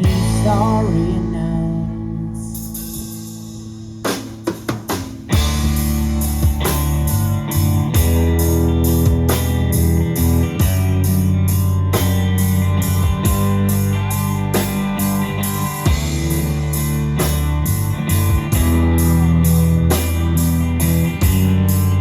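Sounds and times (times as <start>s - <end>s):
live band playing: 0.0s - 22.0s
drum hits: 4.1s - 8.4s.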